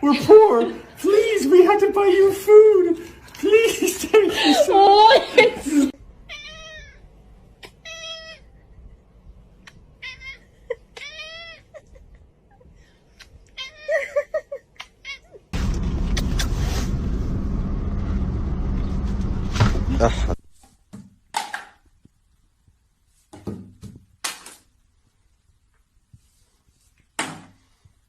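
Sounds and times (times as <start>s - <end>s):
cat meowing: 6.2s - 8.5s, 10.0s - 11.8s, 13.5s - 14.0s.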